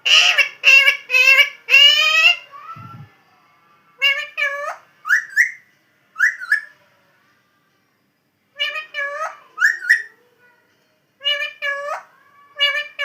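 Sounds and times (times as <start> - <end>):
parrot whistling chirpy calls: 4.0 - 5.6, 6.2 - 6.7, 8.6 - 10.1.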